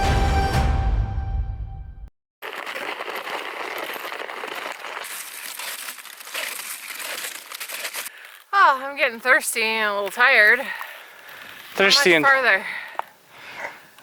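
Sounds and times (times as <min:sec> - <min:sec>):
snowshoes crunching snow: 0:02.4 - 0:12.6.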